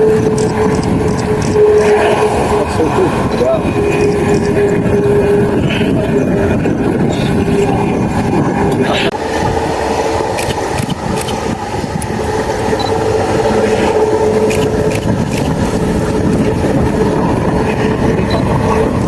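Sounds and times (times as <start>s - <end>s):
jet engines running: 0.0s - 19.0s.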